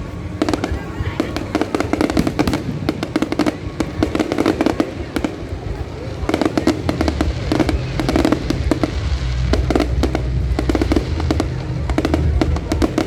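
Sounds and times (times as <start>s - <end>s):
fireworks cracking and banging: 0.0s - 13.0s
low rumble: 5.4s - 13.0s.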